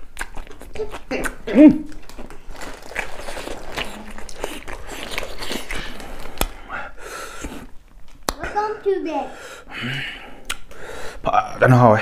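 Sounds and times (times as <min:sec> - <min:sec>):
crunchy chewing: 0:00.0 - 0:06.6
wet mouth sounds: 0:00.0 - 0:08.6, 0:10.4 - 0:10.8.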